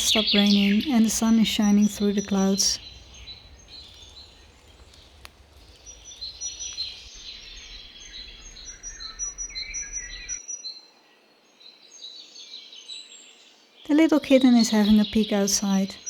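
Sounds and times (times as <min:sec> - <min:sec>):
low rumble: 0:00.0 - 0:10.4
songbirds chirping and trilling: 0:00.0 - 0:16.0.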